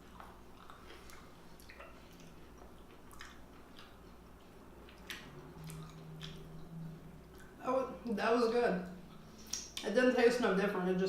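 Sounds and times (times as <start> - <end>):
person chewing: 0.0 - 7.6, 9.1 - 9.9
low steady hum: 0.0 - 11.0.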